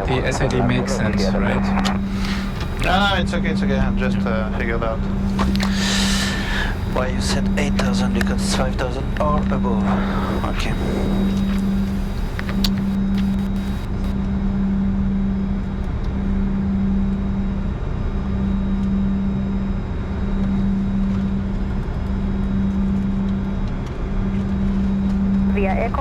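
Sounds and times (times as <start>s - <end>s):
jet engines idling hum: 0.0s - 26.0s
even air rush: 1.8s - 3.3s, 5.0s - 8.2s, 9.0s - 14.1s.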